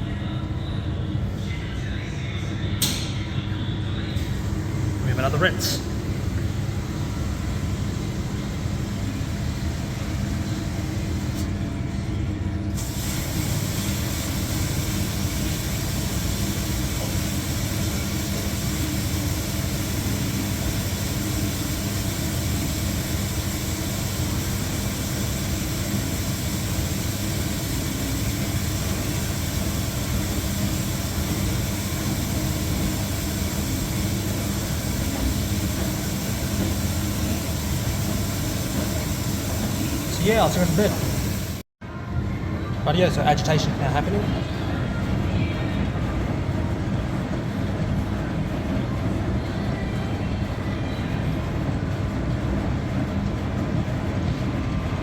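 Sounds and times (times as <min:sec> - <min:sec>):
washing machine humming: 0:00.0 - 0:55.0
water filling machine: 0:04.2 - 0:41.6.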